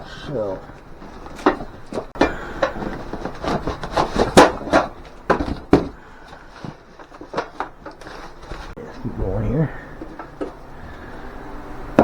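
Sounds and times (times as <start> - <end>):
cardboard box handled: 0.0 - 8.8
metal parts knocking: 0.0 - 8.8, 9.8 - 11.2.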